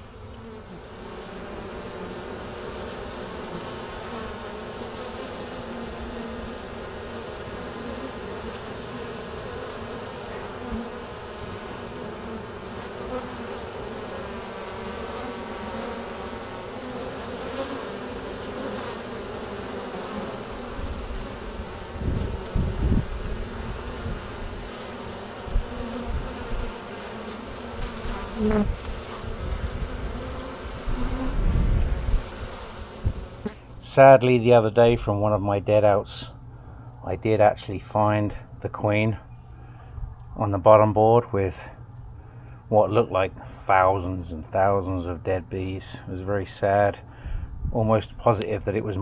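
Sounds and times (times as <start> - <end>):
honeybees buzzing: 0.0 - 33.9.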